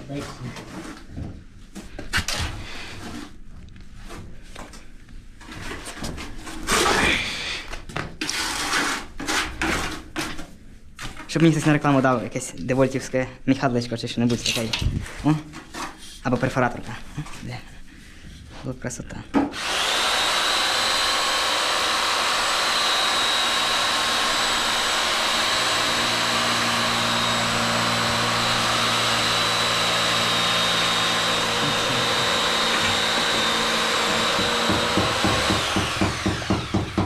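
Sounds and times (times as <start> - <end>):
electric motor whining: 19.6 - 36.9.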